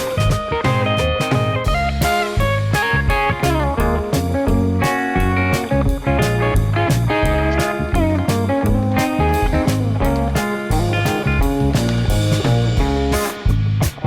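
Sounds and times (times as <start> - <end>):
blues electric guitar: 0.0 - 14.0
steady drum beat: 0.0 - 14.0.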